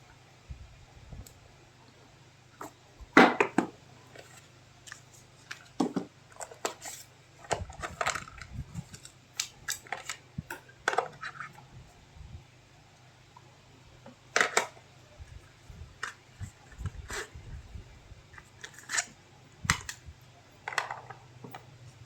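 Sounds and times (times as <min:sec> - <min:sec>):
phone packaging being handled: 0:18.3 - 0:19.2.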